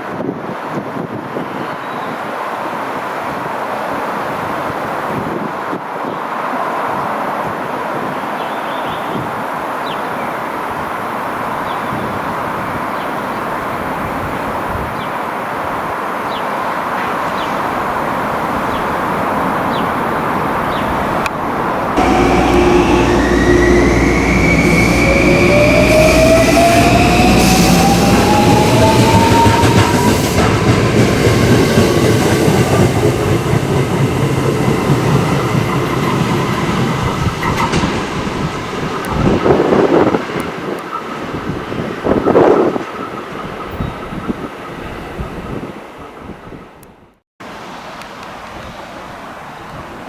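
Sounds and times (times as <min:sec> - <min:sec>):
wheels rumbling on rails: 0:16.9 - 0:47.1
traction motor whine: 0:22.0 - 0:30.1.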